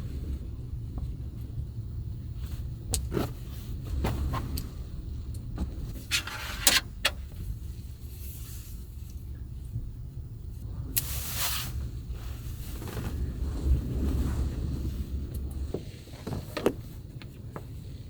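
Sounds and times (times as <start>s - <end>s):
steady low rumble: 0.0s - 17.9s
things being handled clattering: 5.4s - 7.5s.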